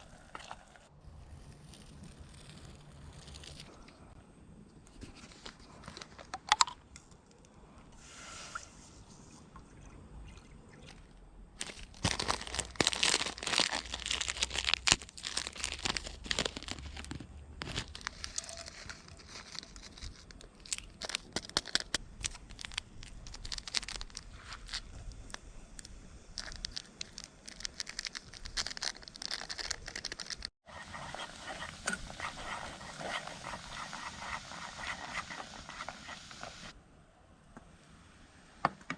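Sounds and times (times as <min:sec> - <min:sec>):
crinkling handling noises: 0:04.9 - 0:07.5, 0:11.6 - 0:30.5
hissing crackle: 0:17.7 - 0:36.8.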